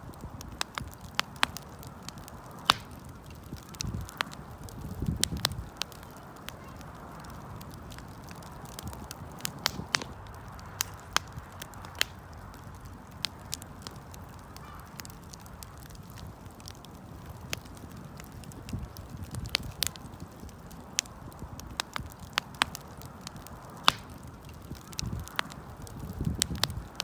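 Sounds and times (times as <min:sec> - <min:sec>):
low rush of flame: 0:00.0 - 0:27.0
wood fire crackling: 0:00.0 - 0:27.0
sharp pops: 0:02.5 - 0:04.4, 0:23.8 - 0:24.2.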